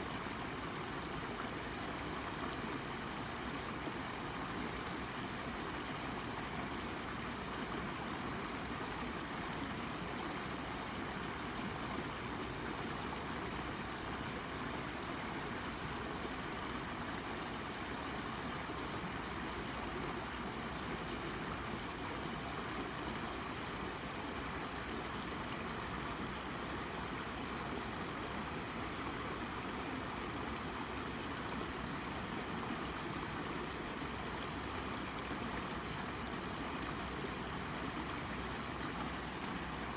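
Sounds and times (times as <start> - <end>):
brook babbling over rocks: 0.0 - 39.9.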